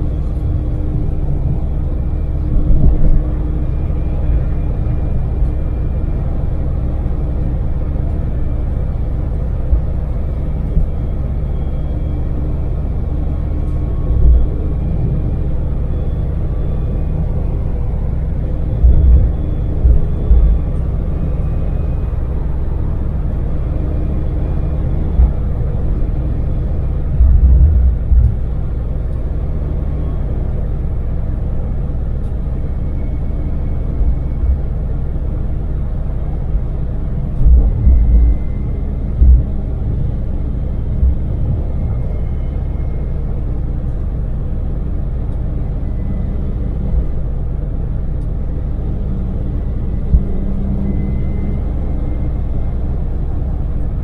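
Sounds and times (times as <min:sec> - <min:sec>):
van engine and road noise: 0:00.0 - 0:54.0
brief low thumps: 0:18.7 - 0:20.9, 0:27.2 - 0:28.6, 0:37.4 - 0:39.8.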